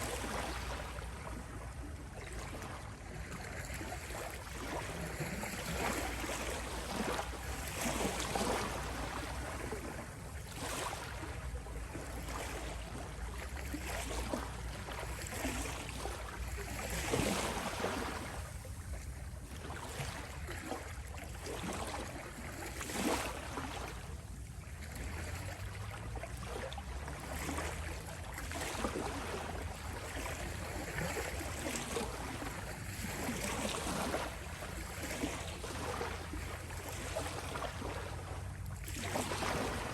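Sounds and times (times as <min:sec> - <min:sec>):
sea waves washing onto beach: 0:23.2 - 0:39.9.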